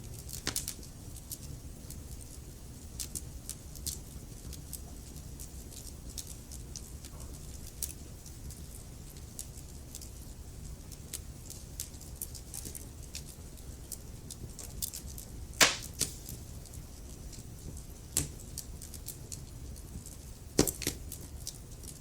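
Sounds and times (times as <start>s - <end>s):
wood fire crackling: 0.1s - 22.0s
loud fire pop: 15.6s - 16.3s.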